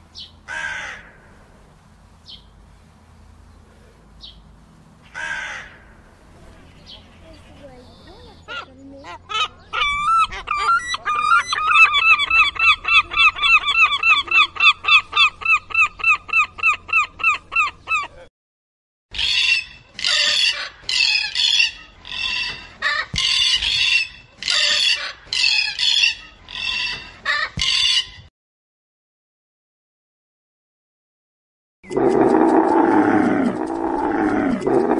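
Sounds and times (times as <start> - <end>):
macaw squawking: 5.1 - 5.9, 6.7 - 18.2, 19.2 - 28.2
gull calling: 8.4 - 18.1, 31.9 - 34.9.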